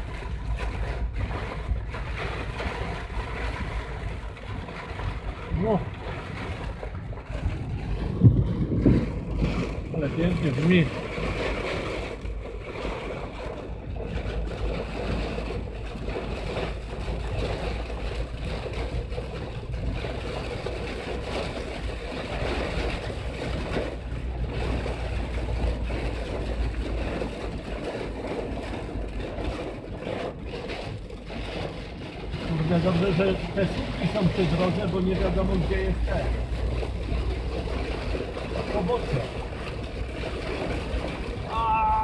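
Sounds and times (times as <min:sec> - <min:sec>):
car rumble: 0:00.0 - 0:42.0
heavy rain on car roof: 0:00.0 - 0:42.0.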